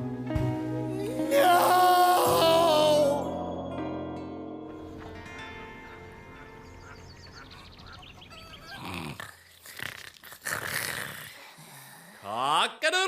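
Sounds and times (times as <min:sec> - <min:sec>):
soft background music: 0:00.0 - 0:08.5.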